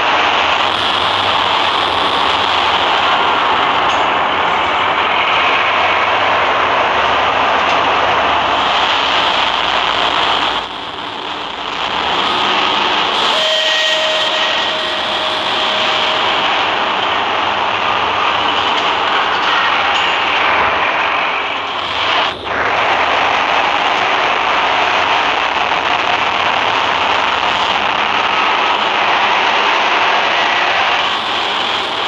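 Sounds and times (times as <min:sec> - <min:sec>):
train rushing: 0:00.0 - 0:32.0
faint steady high tones: 0:00.4 - 0:04.6, 0:08.6 - 0:17.9, 0:31.0 - 0:32.0.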